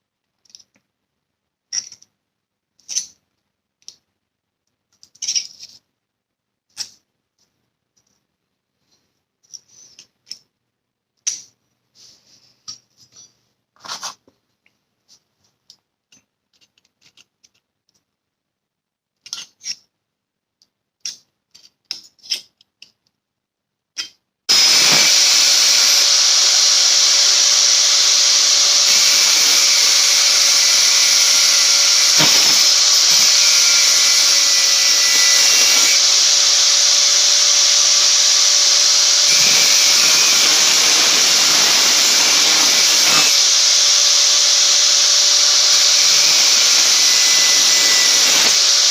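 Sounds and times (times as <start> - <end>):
metal tools clicking and tapping: 1.7 - 2.1
electric power tool running: 24.5 - 48.9.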